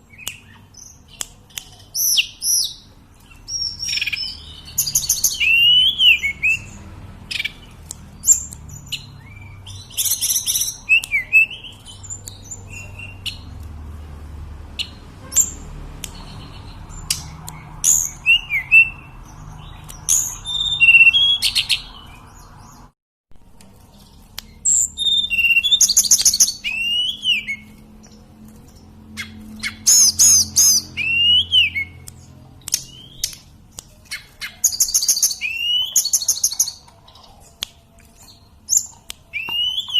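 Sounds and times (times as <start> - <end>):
bird whistling song: 0.1 - 13.4, 16.2 - 22.2, 24.4 - 27.7, 29.2 - 33.4, 34.1 - 37.2, 38.2 - 39.9.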